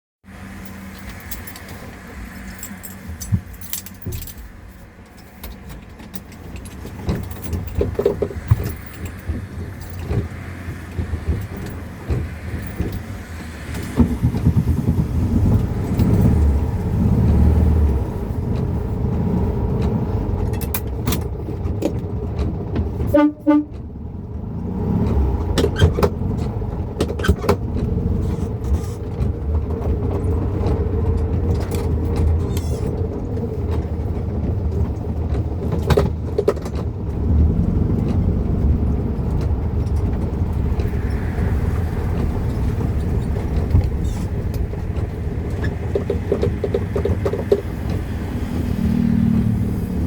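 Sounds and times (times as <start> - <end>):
light clicks and rattles: 0.4 - 23.9.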